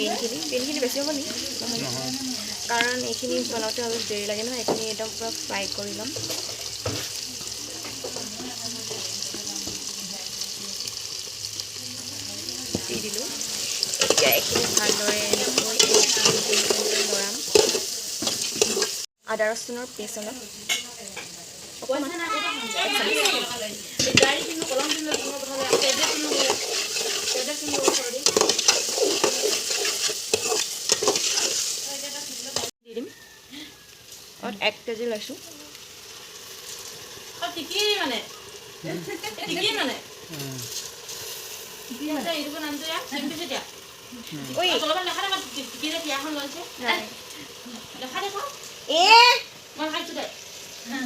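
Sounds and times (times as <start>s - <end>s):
vegetables sizzling in oil: 0.0s - 51.0s
stirring in a pot: 5.8s - 9.9s, 12.6s - 19.1s, 20.7s - 32.7s
spatula scraping and knocking pan: 6.0s - 9.9s, 12.7s - 19.1s, 22.8s - 31.8s.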